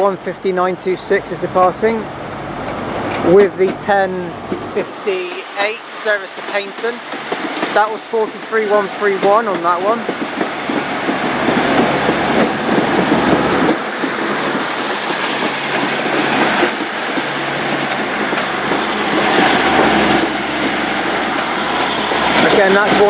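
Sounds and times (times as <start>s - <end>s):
wheels rumbling on rails: 0.0s - 23.0s
wheels clacking over rail joints: 1.0s - 23.0s
diesel engine humming: 11.4s - 23.0s.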